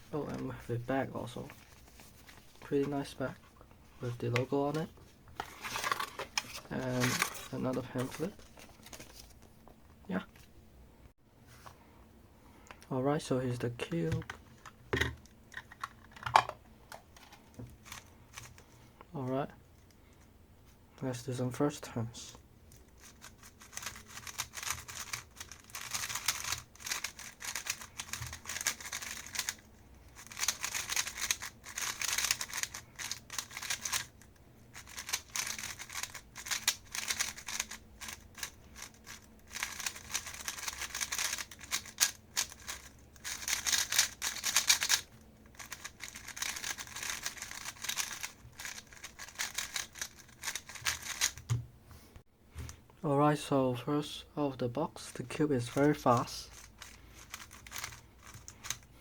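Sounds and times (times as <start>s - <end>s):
puzzle cube plastic clicking: 23.0s - 34.2s, 34.8s - 51.5s, 55.7s - 58.8s.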